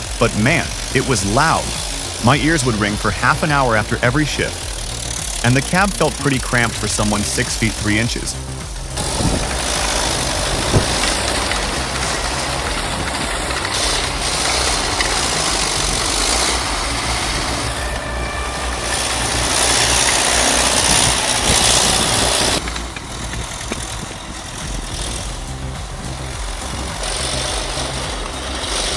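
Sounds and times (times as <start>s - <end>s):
dense mechanical noise: 0.0s - 28.9s
diesel engine low drone: 0.0s - 28.9s.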